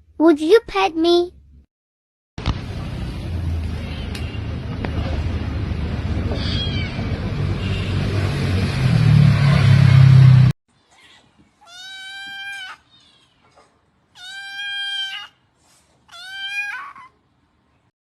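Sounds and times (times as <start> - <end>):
loud noisy hum: 2.4 - 10.5
cat meowing: 6.4 - 7.1, 11.0 - 13.2, 14.2 - 15.4, 16.1 - 17.2.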